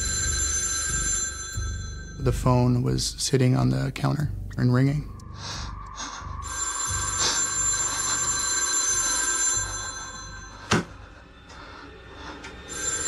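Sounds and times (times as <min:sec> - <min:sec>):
telephone bell ringing: 0:00.0 - 0:02.3, 0:06.4 - 0:10.8, 0:12.7 - 0:13.0.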